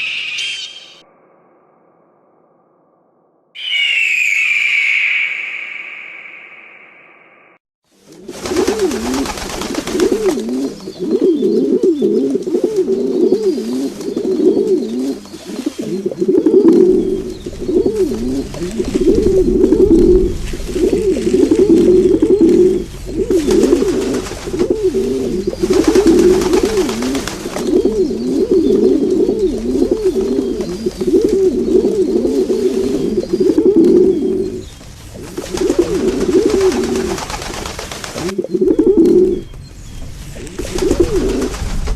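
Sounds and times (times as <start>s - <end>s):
flock of birds calling: 0.0s - 1.0s, 3.6s - 7.1s, 15.0s - 41.5s.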